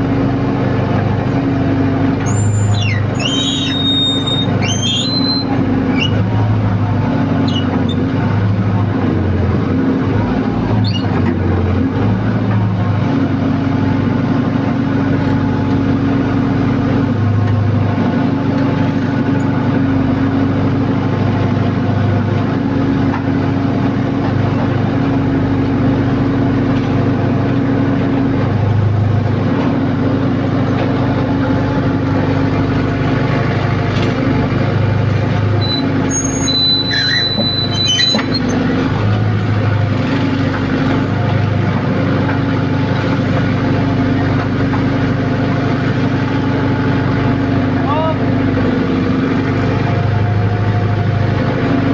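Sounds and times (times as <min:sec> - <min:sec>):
heavy diesel engine running: 0:00.0 - 0:51.9
high-pitched squeals: 0:02.2 - 0:06.2, 0:35.6 - 0:38.6.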